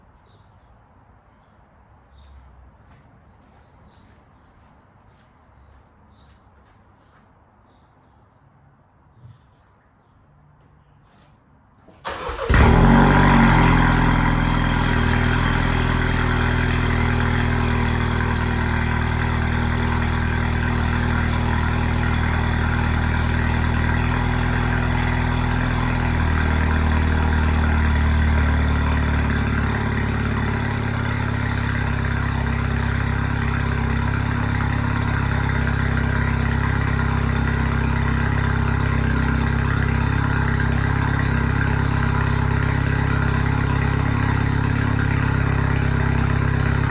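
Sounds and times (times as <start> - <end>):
car engine starting and idling: 12.0 - 46.9.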